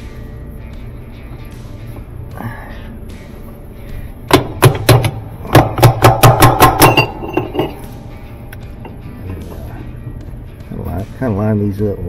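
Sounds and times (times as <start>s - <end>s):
sharp metal knocks: 4.3s - 8.0s.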